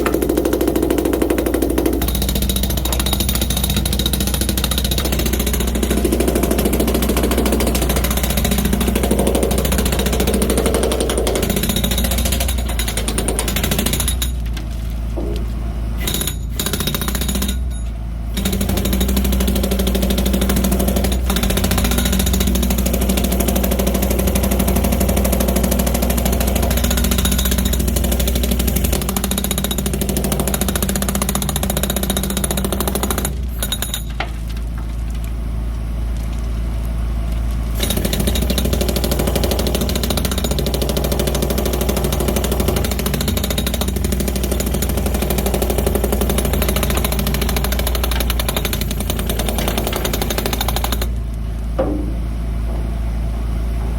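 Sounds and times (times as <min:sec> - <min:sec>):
jackhammer hammering concrete: 0:00.0 - 0:14.5, 0:16.0 - 0:17.8, 0:18.4 - 0:34.3, 0:37.8 - 0:51.2
truck engine drone: 0:51.0 - 0:53.9.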